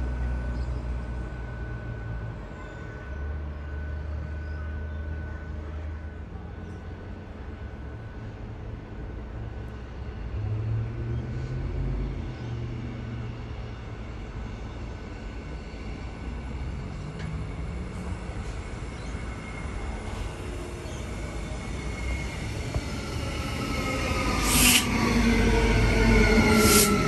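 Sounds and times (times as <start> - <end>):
train rumbling: 0.0 - 27.0
faint high whine: 15.5 - 27.0.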